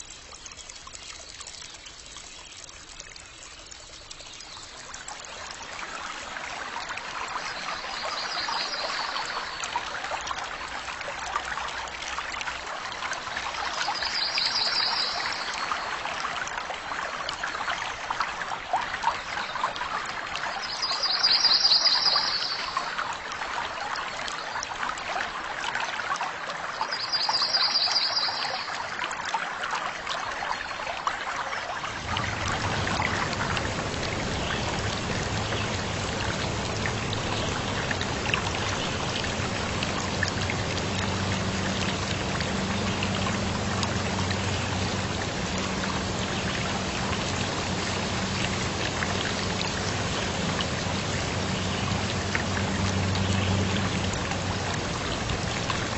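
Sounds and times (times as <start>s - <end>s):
rush of running water: 0.0s - 55.9s
water trickling: 0.0s - 55.9s
faint low hum: 31.9s - 55.9s.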